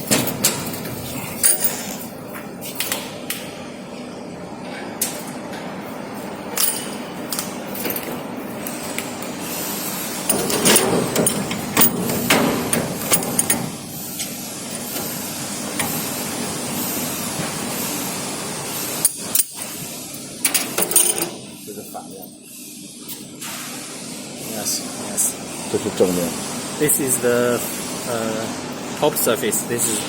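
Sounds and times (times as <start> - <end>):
metal knocks and clanks: 10.3 - 13.8.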